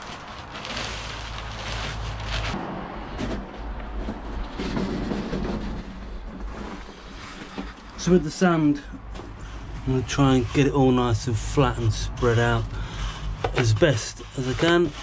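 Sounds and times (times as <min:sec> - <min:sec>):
sand pouring and scraping: 0:00.0 - 0:02.6, 0:09.4 - 0:15.0.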